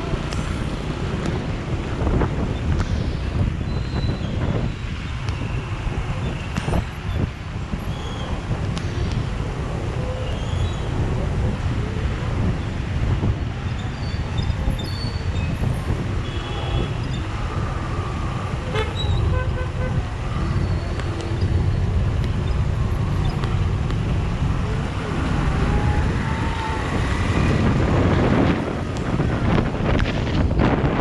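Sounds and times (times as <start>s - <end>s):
road traffic rumble: 0.0s - 31.0s
vehicle horn toots: 18.6s - 20.1s.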